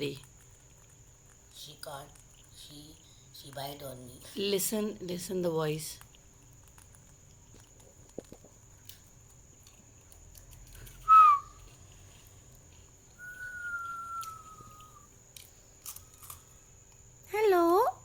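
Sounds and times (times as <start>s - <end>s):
parrot whistling calls: 11.0s - 11.6s, 13.2s - 15.1s
faint clicks: 12.5s - 17.0s.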